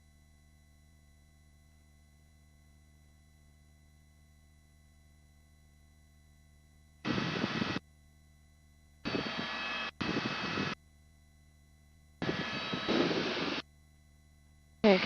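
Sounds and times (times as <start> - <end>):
faint steady hum: 0.0 - 15.0
helicopter cabin and engine noise: 12.2 - 13.6.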